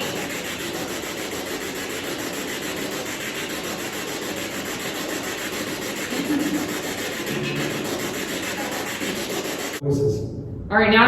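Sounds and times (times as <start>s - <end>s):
radio static with chopping: 0.0s - 0.8s, 4.8s - 9.8s.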